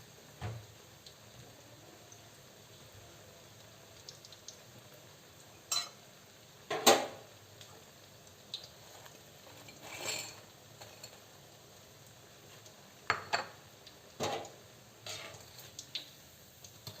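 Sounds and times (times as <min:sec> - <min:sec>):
utensils clinking against pans: 0:05.7 - 0:06.0, 0:09.5 - 0:11.3, 0:14.2 - 0:15.6
utensils clattering: 0:09.6 - 0:11.2.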